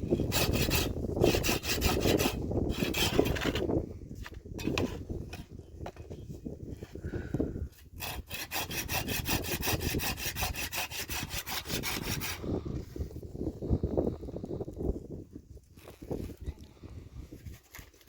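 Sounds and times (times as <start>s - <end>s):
hand saw cutting wood: 0.0s - 3.7s, 7.8s - 12.4s.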